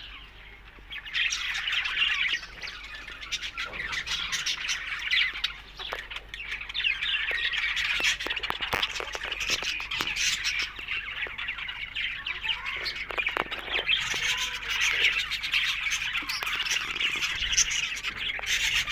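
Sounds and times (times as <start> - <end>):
budgerigars chattering and warbling: 0.0 - 18.9.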